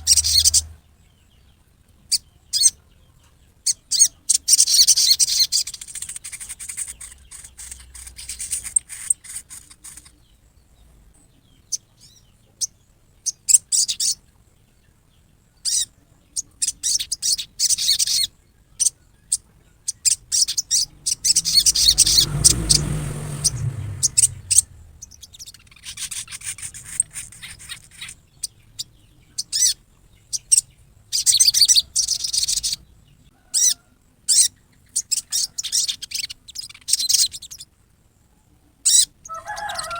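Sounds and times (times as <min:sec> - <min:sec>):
bird harsh rattling call: 0:00.0 - 0:00.8, 0:03.7 - 0:10.3, 0:19.9 - 0:32.8, 0:38.9 - 0:39.9.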